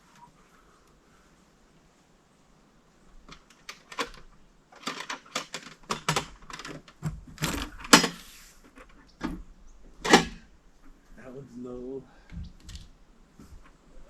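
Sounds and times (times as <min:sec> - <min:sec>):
irregular clicks and knocks: 0:03.2 - 0:11.0, 0:12.2 - 0:13.8.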